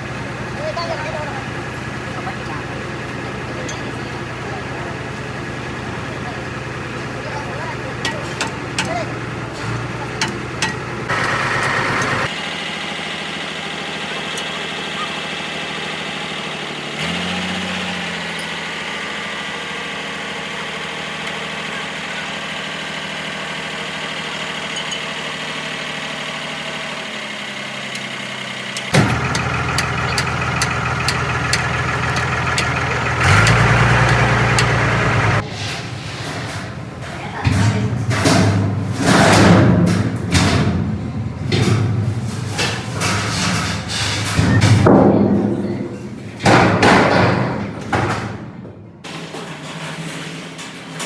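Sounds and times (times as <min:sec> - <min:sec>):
engine idling: 0:00.0 - 0:35.6.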